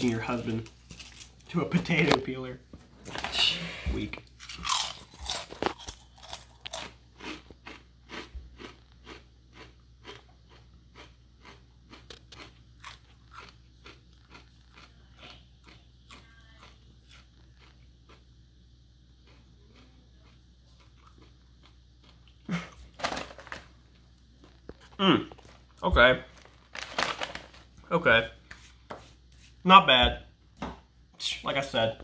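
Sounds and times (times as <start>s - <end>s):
potato chip crunching: 0.0s - 2.2s, 4.4s - 18.2s, 19.2s - 23.8s, 24.4s - 27.8s.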